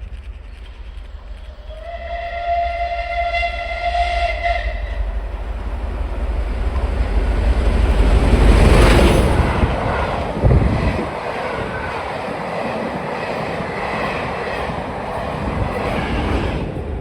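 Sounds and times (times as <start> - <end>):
rumble of train approaching: 0.0 - 17.0
steam locomotive whistle: 1.6 - 5.2.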